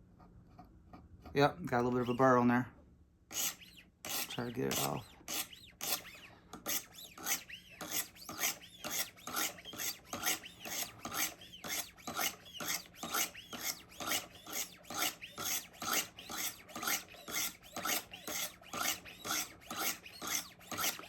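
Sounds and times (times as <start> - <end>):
sharpening stone scraping knife: 3.3 - 21.0.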